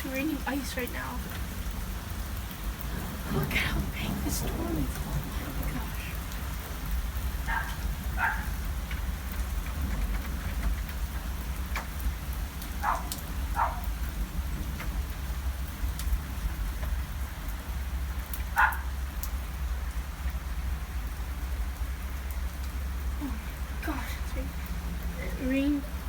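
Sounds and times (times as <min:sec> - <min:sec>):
low rumble: 0:00.0 - 0:12.8
hailstones ticking: 0:00.0 - 0:26.0
heavy rain and hail: 0:00.0 - 0:26.0.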